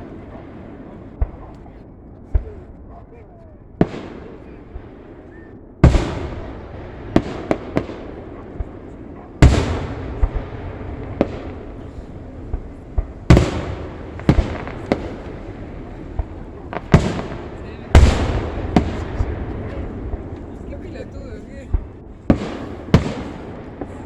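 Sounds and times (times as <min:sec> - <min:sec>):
fireworks shells booming: 0:00.0 - 0:03.1, 0:03.8 - 0:24.0
sharp firework cracks: 0:03.8 - 0:05.2, 0:05.8 - 0:24.0.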